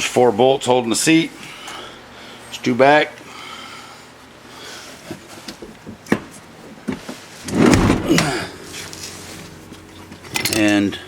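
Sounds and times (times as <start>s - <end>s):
scraping rustle: 7.0s - 10.3s.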